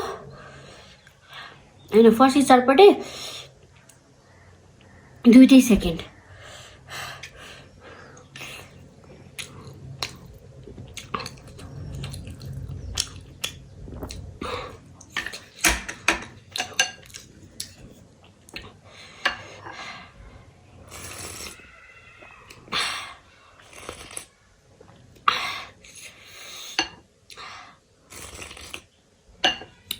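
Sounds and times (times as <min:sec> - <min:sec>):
wet chewing and smacking: 0:08.2 - 0:14.4
slurping: 0:08.2 - 0:15.6, 0:20.8 - 0:21.7, 0:23.6 - 0:24.4, 0:28.1 - 0:28.9.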